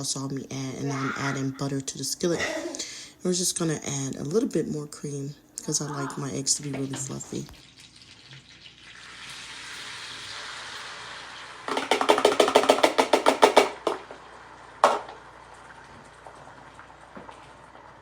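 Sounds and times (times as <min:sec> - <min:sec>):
butter sizzling in a skillet: 0:07.3 - 0:11.7.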